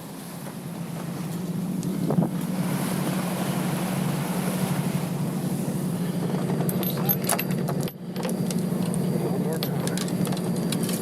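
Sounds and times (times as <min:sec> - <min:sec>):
boat engine droning: 0:00.0 - 0:11.0
wind noise on microphone: 0:01.9 - 0:03.2.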